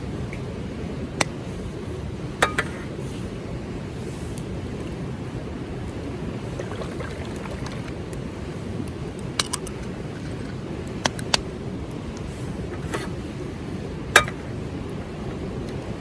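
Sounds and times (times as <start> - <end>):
river flowing: 5.0 - 10.8.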